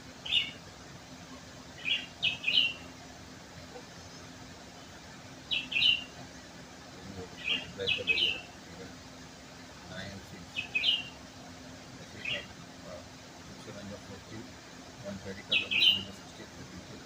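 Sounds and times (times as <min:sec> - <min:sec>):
faint low hum: 0:00.0 - 0:17.0
small bird chirping: 0:00.1 - 0:00.6, 0:01.3 - 0:02.9, 0:05.4 - 0:06.2, 0:07.1 - 0:08.6, 0:09.9 - 0:11.2, 0:12.1 - 0:13.0, 0:15.2 - 0:16.2.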